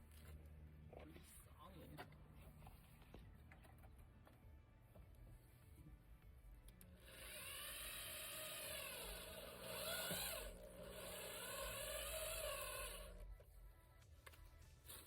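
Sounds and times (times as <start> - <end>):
power drill whining: 7.0 - 13.5.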